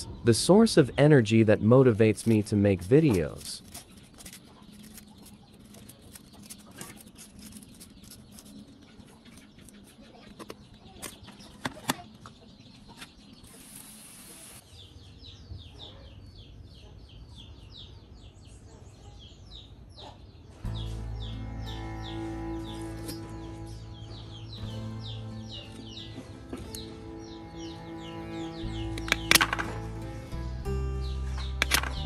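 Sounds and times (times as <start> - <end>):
small birds chirping: 0.0 - 32.0
music: 20.6 - 32.0.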